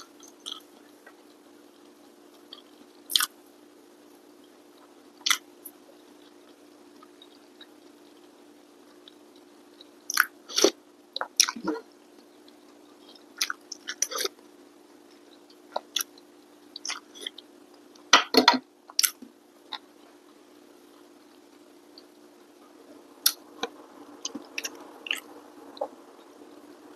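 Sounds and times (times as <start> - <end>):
person chewing food: 0.1 - 0.8, 2.4 - 3.3, 13.0 - 14.4, 15.3 - 18.1, 18.9 - 20.0, 23.2 - 26.0.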